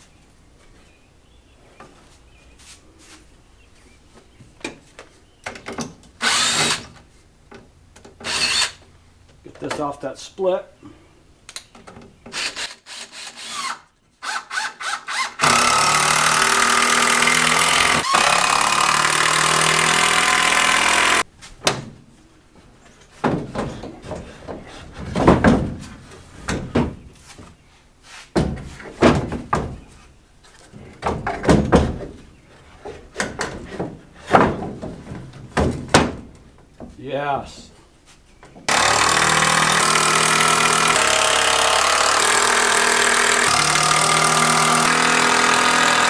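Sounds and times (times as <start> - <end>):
power tool running: 12.4 - 21.2, 38.7 - 46.0
wooden knocks and clatter: 22.9 - 27.5, 28.3 - 30.0, 30.6 - 37.0.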